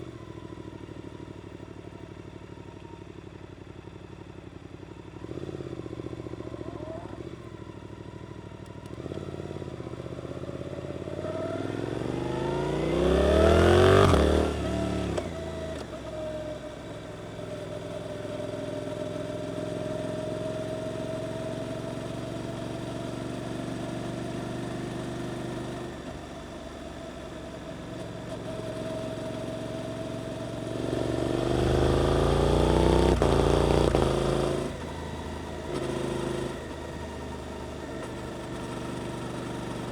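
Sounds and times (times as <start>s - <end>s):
motorcycle engine revving: 8.9s - 16.1s, 27.3s - 39.9s.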